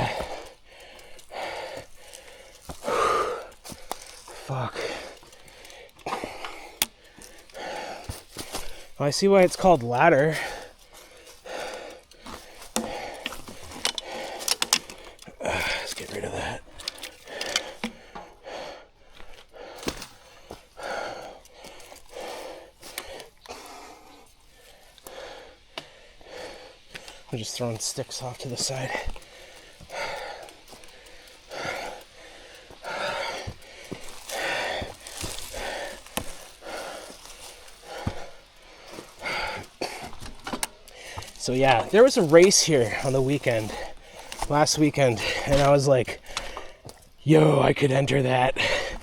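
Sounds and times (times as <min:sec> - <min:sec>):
sharp clicks and snaps: 0:00.0 - 0:09.0, 0:10.5 - 0:18.3
sticks clicking and knocking: 0:00.0 - 0:47.2
heavy hard breathing: 0:00.0 - 0:49.0.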